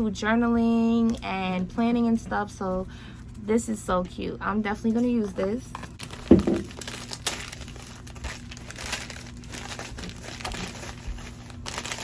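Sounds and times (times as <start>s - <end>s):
packaging crinkling: 6.0s - 12.0s.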